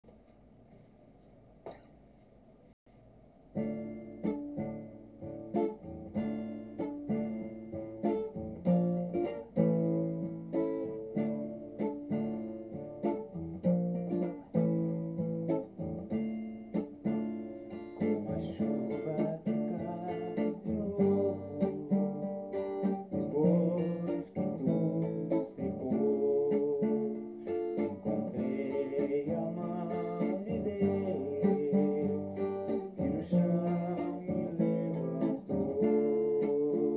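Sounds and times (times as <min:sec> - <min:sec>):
acoustic guitar playing: 0:03.5 - 0:36.9.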